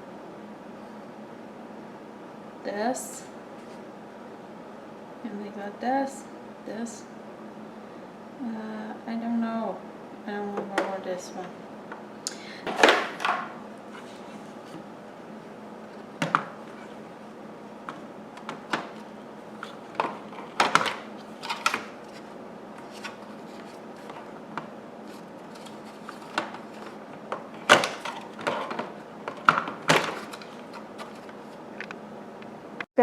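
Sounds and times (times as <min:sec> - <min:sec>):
vacuum parts knocking and clicking: 0:12.6 - 0:13.6, 0:16.2 - 0:16.8, 0:17.8 - 0:19.0, 0:19.6 - 0:32.0
packaging rustling: 0:17.9 - 0:24.4, 0:25.0 - 0:31.8.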